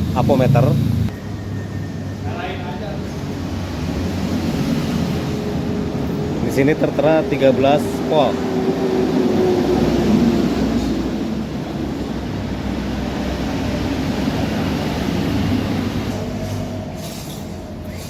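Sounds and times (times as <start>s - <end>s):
engine rumbling: 0.0s - 18.0s.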